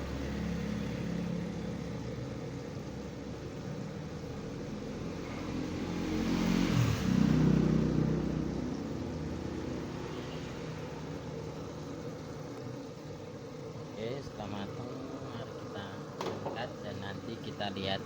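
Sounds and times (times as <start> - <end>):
passing vehicle engine: 0.0 - 2.6, 4.1 - 12.3.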